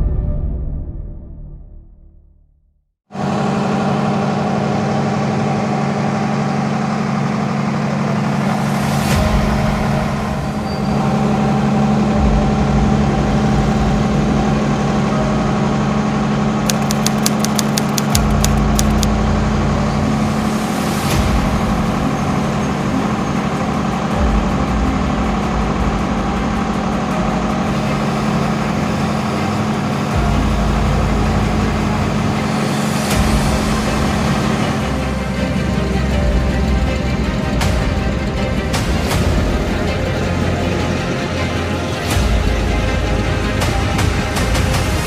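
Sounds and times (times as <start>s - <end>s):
diesel engine rumbling: 3.2s - 45.0s
sharp ticks: 16.7s - 19.1s.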